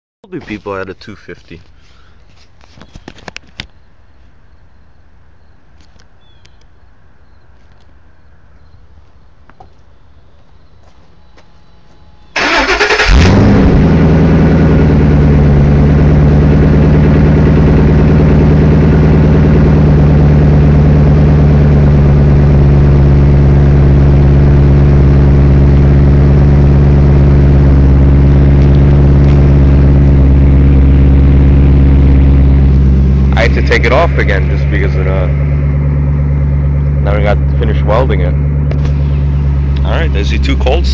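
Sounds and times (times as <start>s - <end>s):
engine cranking and idling: 12.4s - 40.9s.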